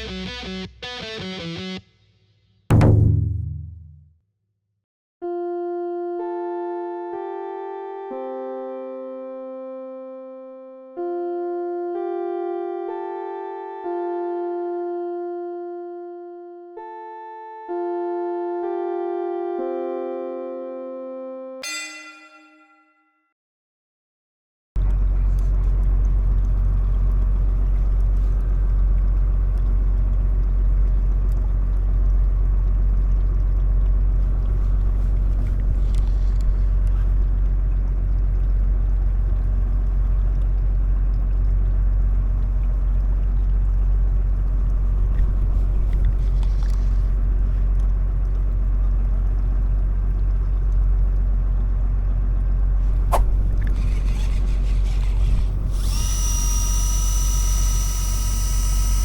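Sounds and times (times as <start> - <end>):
boat engine droning: 5.2 - 22.3, 24.8 - 59.0
sharp click: 52.9 - 56.6.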